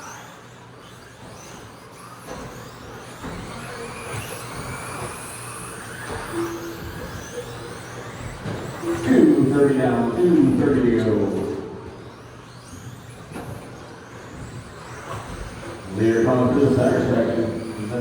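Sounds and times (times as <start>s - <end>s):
electric motors whining: 0.0s - 18.0s
steady low hum: 8.4s - 12.5s, 13.7s - 18.0s.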